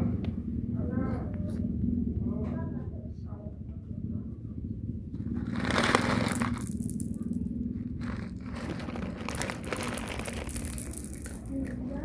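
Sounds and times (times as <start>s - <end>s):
steady low hum: 0.0s - 12.0s
rustling and scraping: 5.1s - 12.0s.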